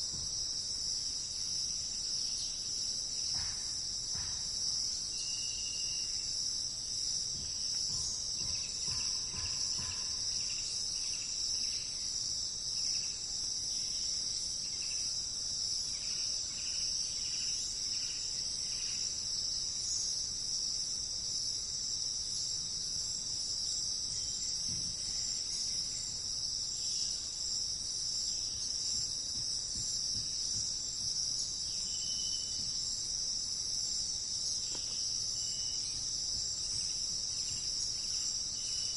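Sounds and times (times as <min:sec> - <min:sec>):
high-pitched insect chorus: 0:00.0 - 0:38.9
faint bird chirps: 0:31.7 - 0:32.7.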